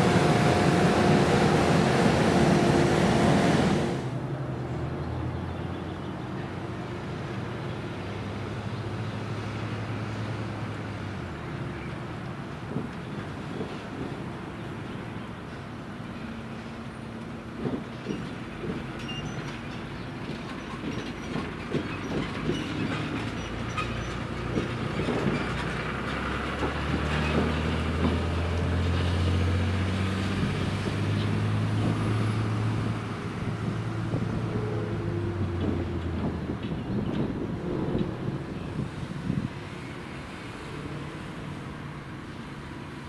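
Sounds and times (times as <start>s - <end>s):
diesel train engine drone: 0.0s - 43.0s
wheels clicking over rails: 11.9s - 43.0s.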